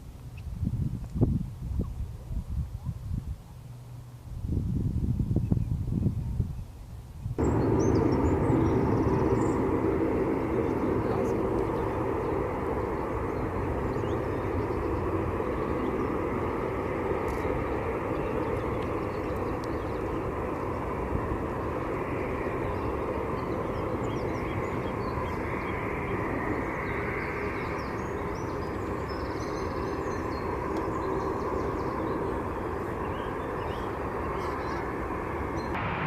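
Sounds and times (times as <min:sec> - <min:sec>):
airplane rumble and hiss: 0:00.0 - 0:36.0.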